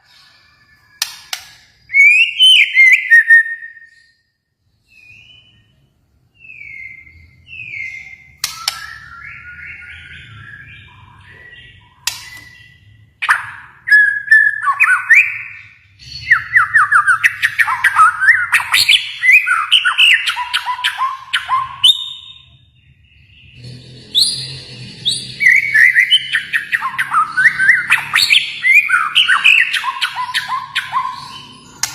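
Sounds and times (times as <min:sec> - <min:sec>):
bird singing whistled phrases: 0:01.9 - 0:04.1, 0:25.4 - 0:31.9.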